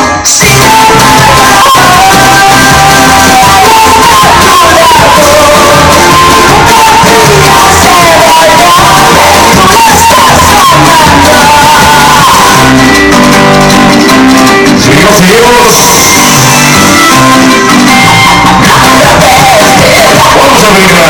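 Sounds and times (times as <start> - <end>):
loud music with singing: 0.0 - 21.0.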